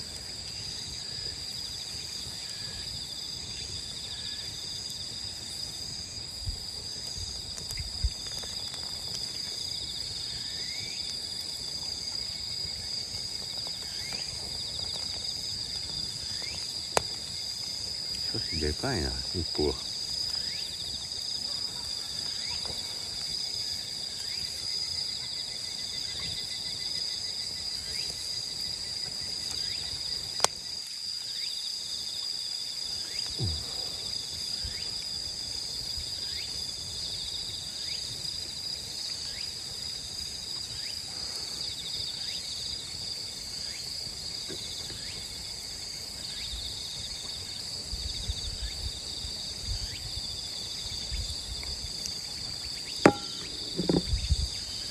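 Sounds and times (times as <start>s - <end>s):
crickets and insects chirping: 0.0s - 54.9s.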